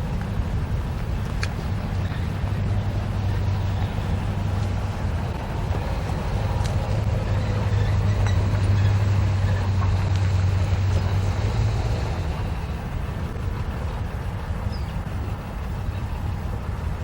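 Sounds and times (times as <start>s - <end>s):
diesel locomotive drone: 0.0s - 17.0s.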